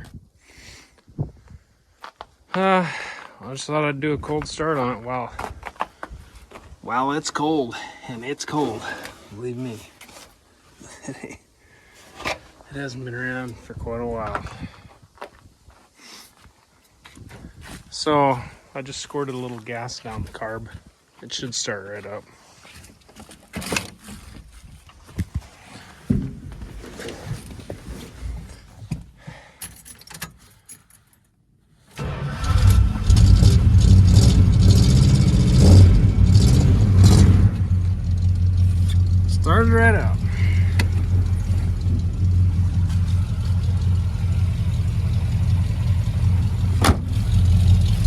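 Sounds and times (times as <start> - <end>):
keys jangling: 29.6 - 31.3
engine cranking and starting: 32.0 - 48.0.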